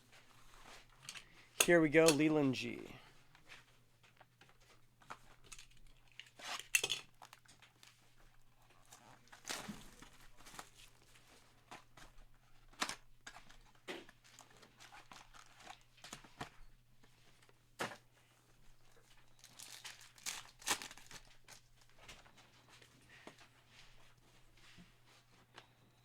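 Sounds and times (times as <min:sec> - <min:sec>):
card wrappers tearing and crinkling: 0:19.5 - 0:21.3.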